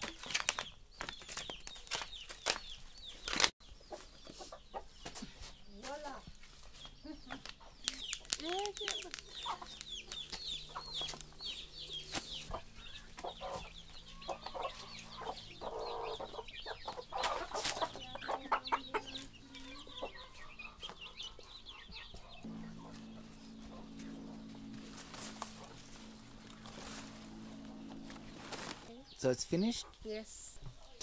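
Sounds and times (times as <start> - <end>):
chickens clucking and cheeping: 0.0 - 31.0
low steady hum: 22.4 - 29.6.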